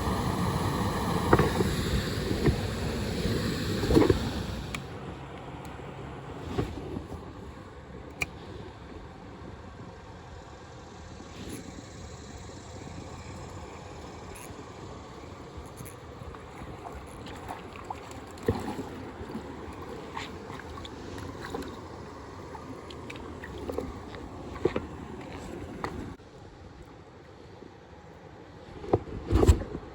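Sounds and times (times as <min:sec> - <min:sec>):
flowing river water: 0:12.4 - 0:28.6
small splashes and clicks: 0:15.6 - 0:26.1.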